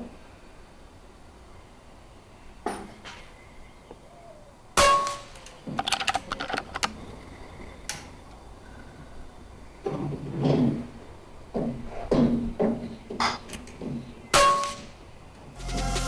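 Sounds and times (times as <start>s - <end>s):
mechanical clicks and clatter: 5.4s - 7.0s.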